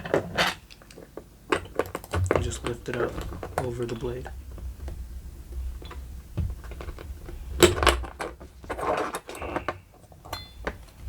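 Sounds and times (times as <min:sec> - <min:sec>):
small metal clicks and clatter: 0:06.6 - 0:11.0
short metallic ring: 0:09.3 - 0:10.7.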